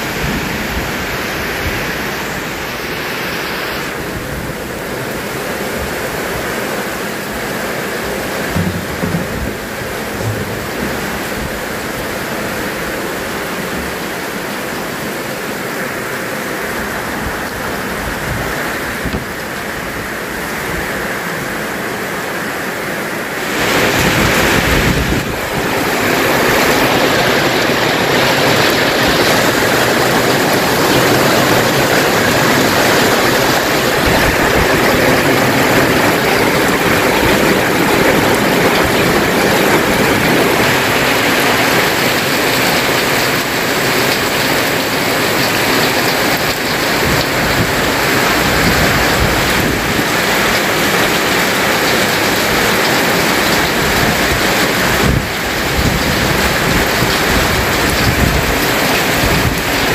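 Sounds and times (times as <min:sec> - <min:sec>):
heavy rain pouring: 0:00.0 - 0:59.9
rainwater splashing into plastic drum: 0:07.3 - 0:13.9, 0:23.3 - 0:59.9.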